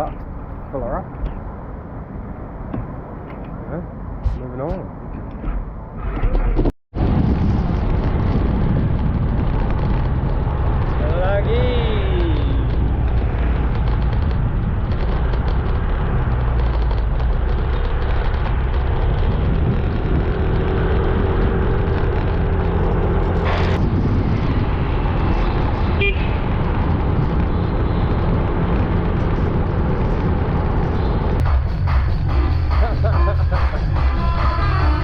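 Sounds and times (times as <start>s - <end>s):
wind and road noise: 0.0s - 35.0s.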